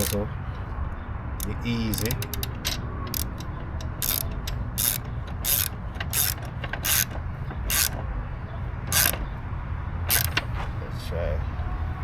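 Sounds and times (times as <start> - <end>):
ratchet wrench clicking: 0.0 - 0.3, 1.4 - 8.0, 8.9 - 9.2, 10.1 - 10.4.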